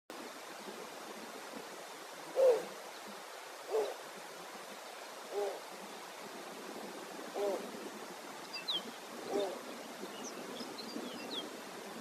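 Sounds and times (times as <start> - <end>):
background hiss: 0.1 - 12.0
owl hooting: 2.4 - 2.7, 5.3 - 5.6.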